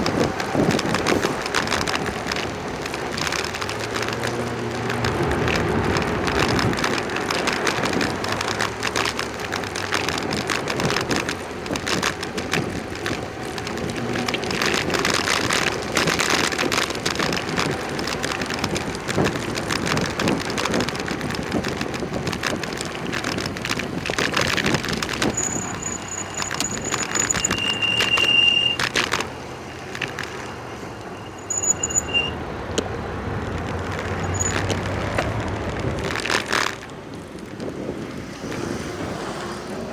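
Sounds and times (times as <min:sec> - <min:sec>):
wind on microphone: 0:00.0 - 0:28.2, 0:32.6 - 0:39.9
bicycle frame rattling: 0:00.0 - 0:39.6
bicycle tyre and road noise: 0:00.0 - 0:39.9
short ticks and squeaks: 0:24.1 - 0:32.9, 0:33.5 - 0:35.4
bicycle brakes squealing: 0:25.2 - 0:29.1, 0:30.2 - 0:32.4, 0:34.2 - 0:34.7.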